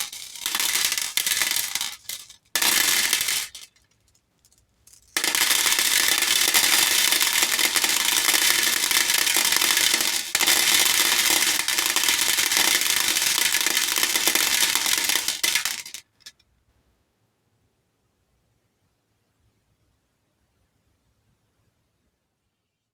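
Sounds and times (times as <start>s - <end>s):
beads pouring into a bowl: 0.0s - 3.8s, 4.4s - 16.2s.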